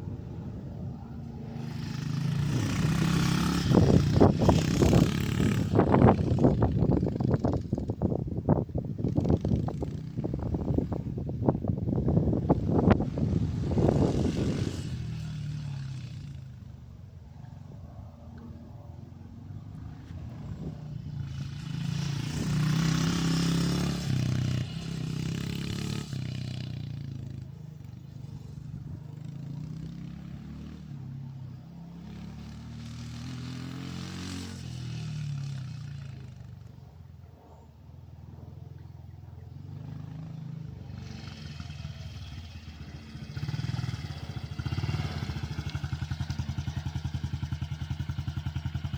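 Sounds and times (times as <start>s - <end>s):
dirt bike engine revving: 1.4s - 7.9s, 12.0s - 16.4s, 19.7s - 27.3s, 31.8s - 36.4s, 39.8s - 48.9s.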